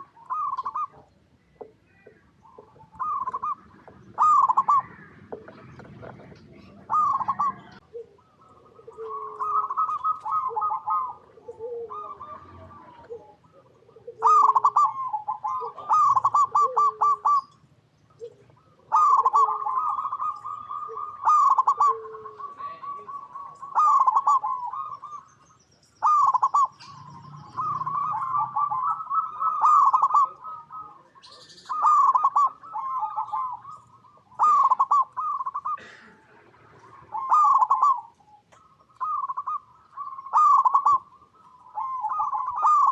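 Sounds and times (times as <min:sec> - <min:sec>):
dove trilled cooing: 0:00.0 - 0:42.9
low short dove coo: 0:01.6 - 0:17.5, 0:18.2 - 0:25.2.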